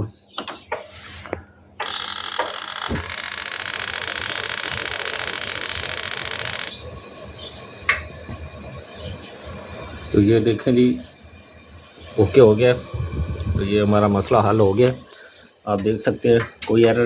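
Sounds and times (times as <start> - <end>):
gas heater whirring hiss: 0.0 - 17.0
heater click: 1.3 - 8.4.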